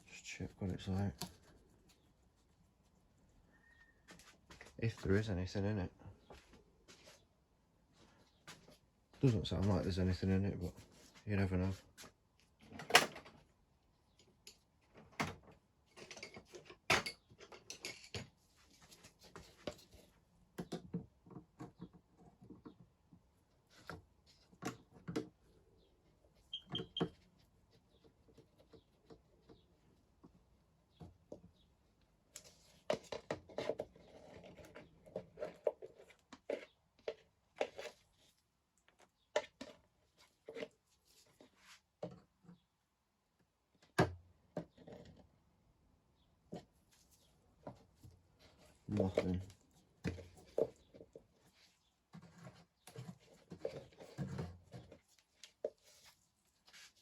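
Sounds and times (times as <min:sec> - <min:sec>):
hand tools and metal parts clattering: 0:14.2 - 0:20.0.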